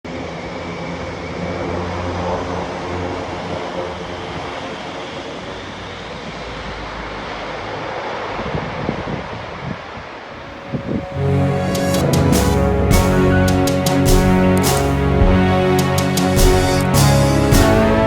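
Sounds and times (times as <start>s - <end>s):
turboprop engines running: 0.1s - 7.7s, 11.2s - 18.0s.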